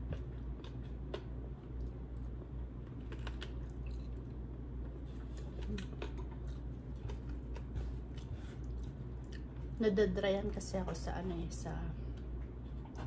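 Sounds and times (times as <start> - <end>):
chewing: 0.0 - 9.8
low steady hum: 0.0 - 13.0.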